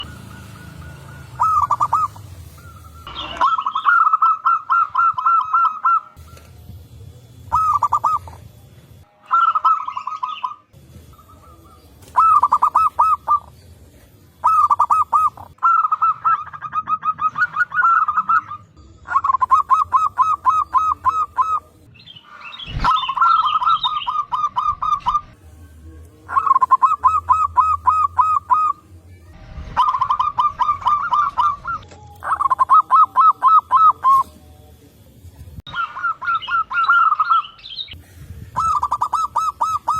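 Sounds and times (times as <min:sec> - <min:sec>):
doves cooing: 0:00.0 - 0:06.7, 0:07.4 - 0:08.5, 0:09.3 - 0:21.9, 0:22.7 - 0:25.6, 0:26.2 - 0:34.4, 0:35.7 - 0:39.9
faint bird chirps: 0:00.0 - 0:06.9.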